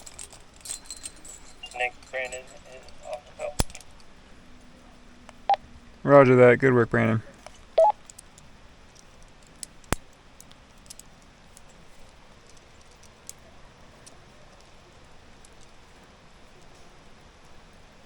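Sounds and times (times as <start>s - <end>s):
light rain hiss: 0.0s - 18.0s
small ticks: 1.7s - 4.1s, 7.4s - 18.0s.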